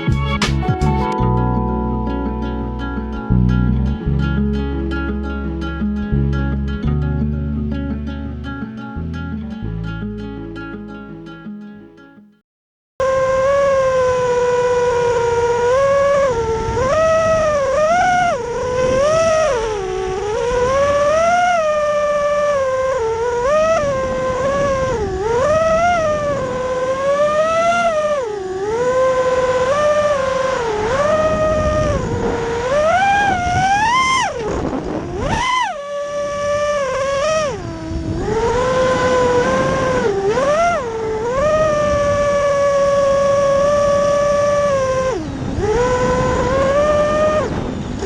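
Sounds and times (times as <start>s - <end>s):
quadcopter motors whining: 13.0s - 48.0s.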